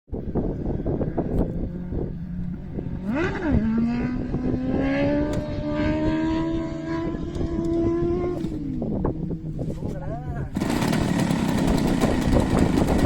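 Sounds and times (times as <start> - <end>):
wind buffeting microphone: 0.1 - 13.0
small engine revving: 2.8 - 9.0, 10.5 - 13.0.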